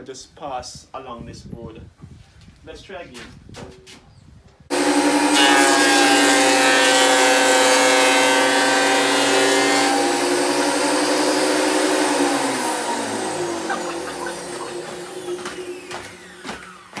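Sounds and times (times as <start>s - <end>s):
board feeding through planer: 4.7s - 17.0s
thickness planer whine: 4.7s - 17.0s.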